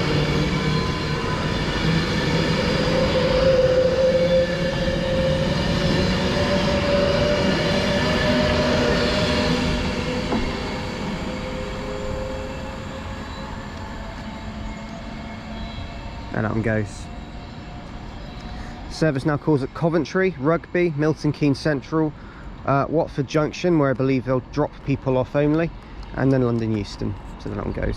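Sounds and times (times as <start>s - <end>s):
electric train motors whining: 0.0s - 20.7s.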